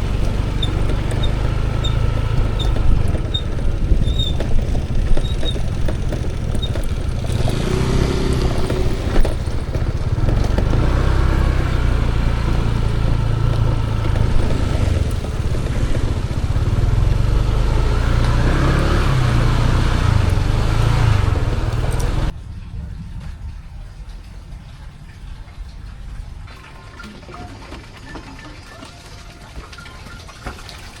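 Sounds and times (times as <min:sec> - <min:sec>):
vehicle engine running: 0:00.0 - 0:22.4.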